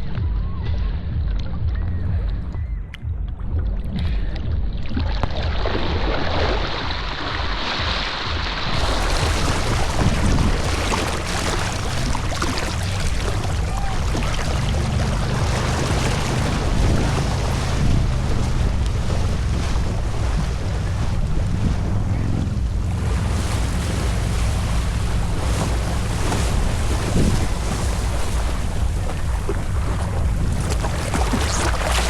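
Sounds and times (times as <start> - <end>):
wind buffeting microphone: 1.6 - 32.0
rushing water: 4.8 - 32.0.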